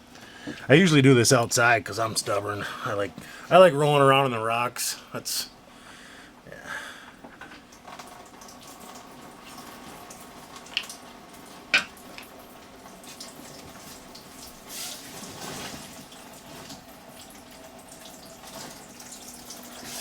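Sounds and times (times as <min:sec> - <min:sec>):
coolant trickling and splashing: 0:07.4 - 0:20.0.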